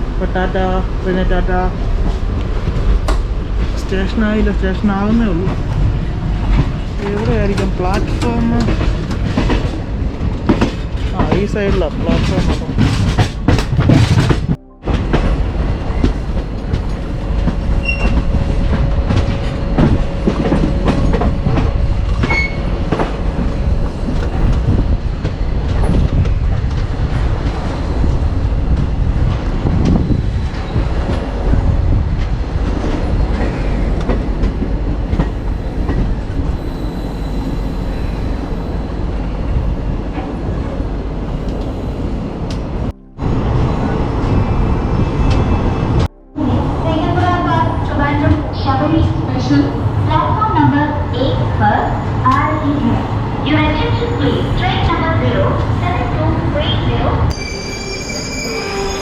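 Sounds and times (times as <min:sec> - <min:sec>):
train rumble: 0:00.0 - 0:59.0
wheels clacking over rail joints: 0:05.4 - 0:28.0
thin wheel squeal: 0:57.3 - 0:59.0.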